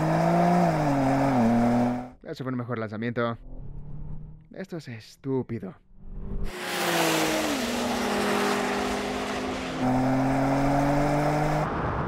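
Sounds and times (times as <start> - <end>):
car engine accelerating hard: 0.0 - 2.1, 6.1 - 11.8.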